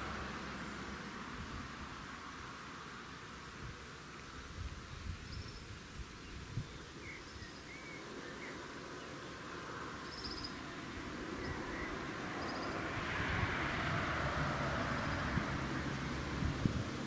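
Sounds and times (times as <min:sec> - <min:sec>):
birds chirping: 0:04.0 - 0:10.6.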